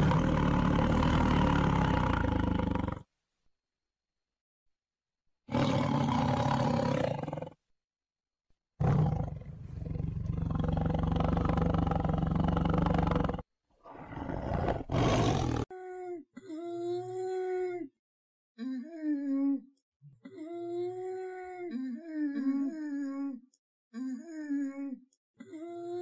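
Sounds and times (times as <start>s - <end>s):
tiger roaring: 0.0s - 3.0s, 5.5s - 7.6s, 8.8s - 15.6s.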